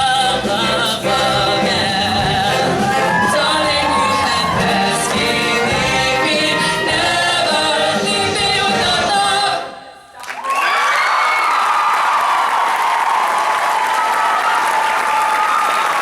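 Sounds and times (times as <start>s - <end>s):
choir singing in harmony: 0.0s - 10.1s
applause and cheering: 0.4s - 7.7s, 10.2s - 16.0s.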